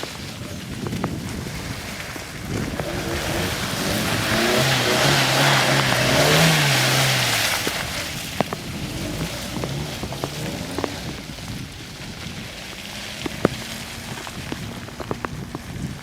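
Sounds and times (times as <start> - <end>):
tyres churning through mud: 0.0 - 16.0
engine revving under load: 2.4 - 11.6.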